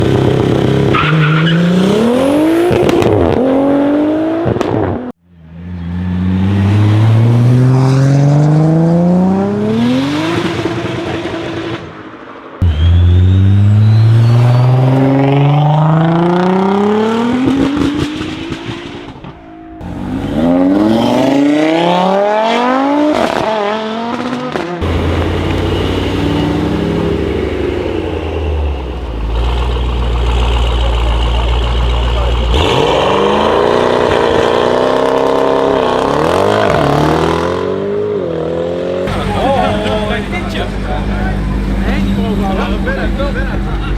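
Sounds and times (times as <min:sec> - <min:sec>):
sports car engines accelerating: 0:00.0 - 0:12.0, 0:12.6 - 0:43.9.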